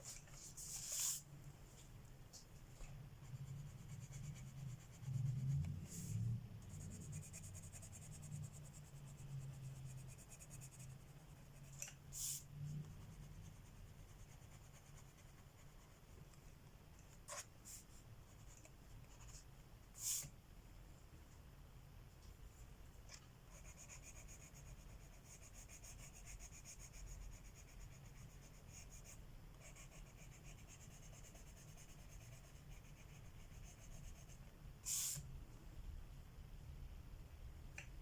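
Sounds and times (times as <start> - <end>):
pencil scratching on paper: 3.2 - 12.4, 13.0 - 16.1, 23.5 - 34.5.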